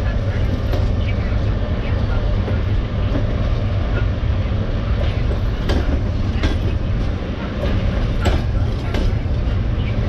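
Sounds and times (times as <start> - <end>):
train wheels rumbling on rails: 0.0 - 10.0
wheel clacks over rail joints: 5.0 - 9.6.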